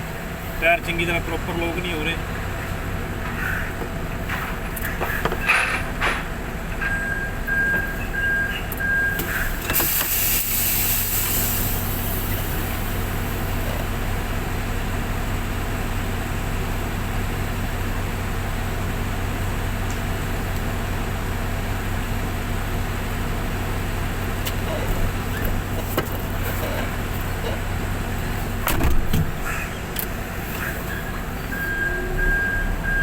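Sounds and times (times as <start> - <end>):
diesel engine running: 0.0 - 33.0
air hiss: 9.2 - 12.8.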